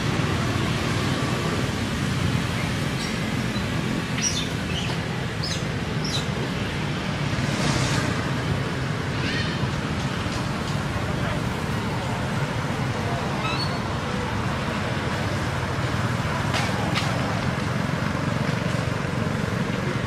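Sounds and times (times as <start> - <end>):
birds chirping: 2.2 - 6.8.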